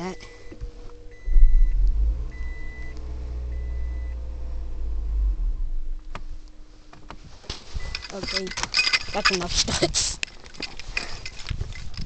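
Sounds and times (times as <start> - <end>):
car reminder chime beeping: 0.0 - 4.2
low rumble: 0.0 - 9.8.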